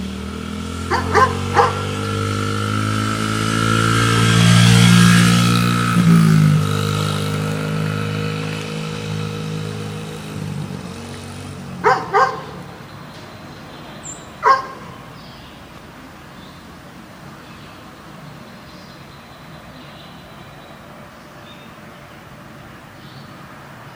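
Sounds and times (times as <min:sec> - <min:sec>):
dirt bike engine running: 0:00.0 - 0:12.8
dog barking: 0:00.9 - 0:02.0, 0:11.8 - 0:12.7, 0:14.4 - 0:15.1.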